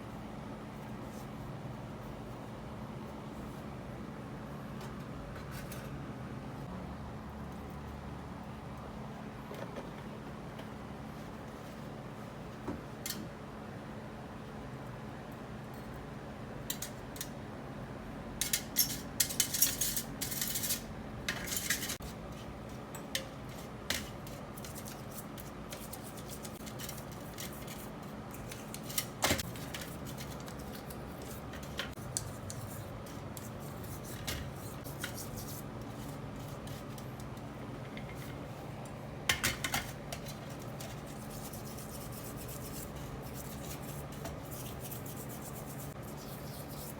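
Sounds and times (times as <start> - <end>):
faint steady hum: 0.0 - 46.9
metal parts clinking and scraping: 18.4 - 22.0.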